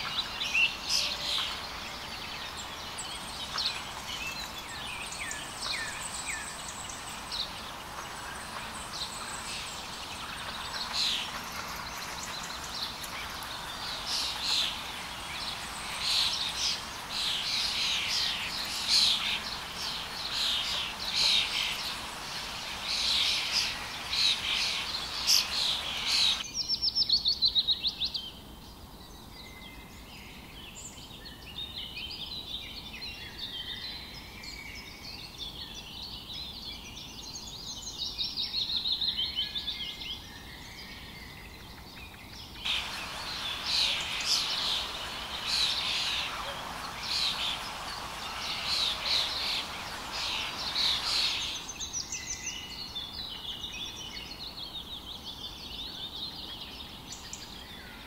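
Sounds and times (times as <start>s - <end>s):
steady hiss: 0.0s - 26.5s, 42.6s - 58.0s
small birds chirping: 0.0s - 28.3s, 29.0s - 58.0s
loud rapid bird trill: 42.7s - 53.4s.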